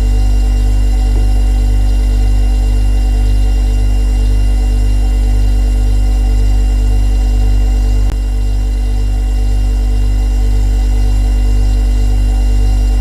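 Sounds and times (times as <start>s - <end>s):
refrigerator compressor humming: 0.0s - 13.0s.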